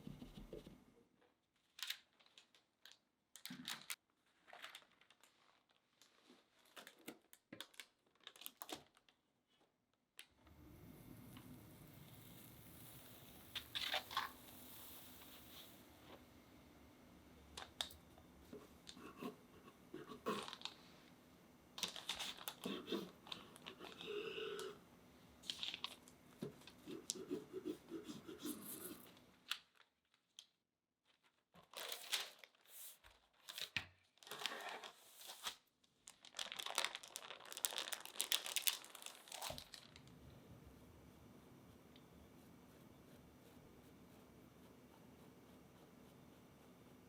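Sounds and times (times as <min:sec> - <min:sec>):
paper crinkling and tearing: 0:01.7 - 0:09.2, 0:20.0 - 0:20.8, 0:21.8 - 0:24.2, 0:31.1 - 0:40.1.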